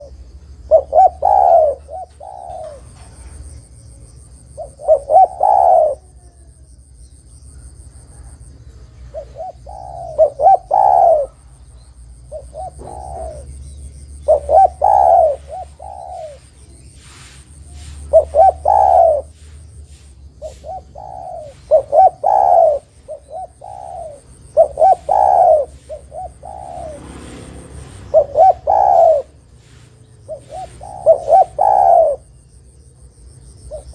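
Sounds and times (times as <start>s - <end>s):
dove cooing: 0.0s - 6.7s, 7.5s - 32.8s, 33.5s - 33.9s.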